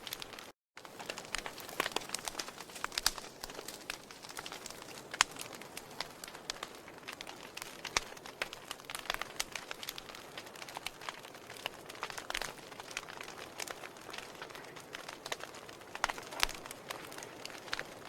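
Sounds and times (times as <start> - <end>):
logs crackling and popping: 0.0 - 18.0.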